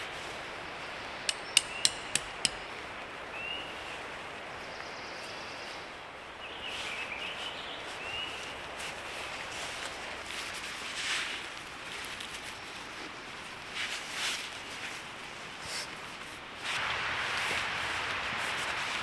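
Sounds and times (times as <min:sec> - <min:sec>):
outdoor background noise: 0:00.0 - 0:19.0
sharp hammer strikes: 0:01.3 - 0:02.6.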